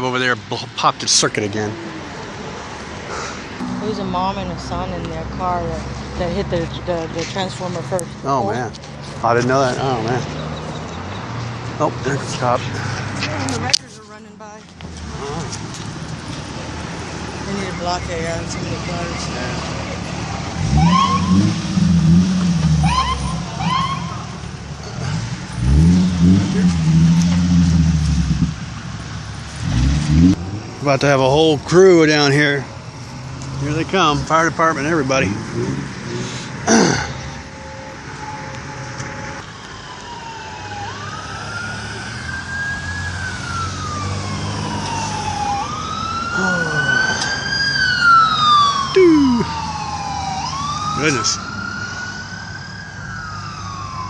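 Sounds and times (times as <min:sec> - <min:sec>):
heavy vehicle engine pulling away: 0:14.9 - 0:37.5, 0:39.8 - 0:54.0
fire truck siren wailing: 0:16.9 - 0:28.2, 0:33.6 - 0:54.0.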